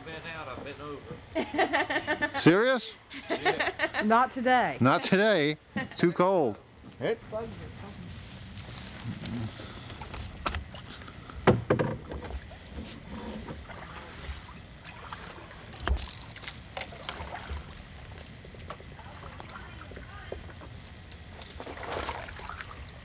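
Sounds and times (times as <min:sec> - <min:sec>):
paddle knocking against hull: 0:11.4 - 0:16.2
paddle strokes in water: 0:12.0 - 0:20.8, 0:21.5 - 0:23.0.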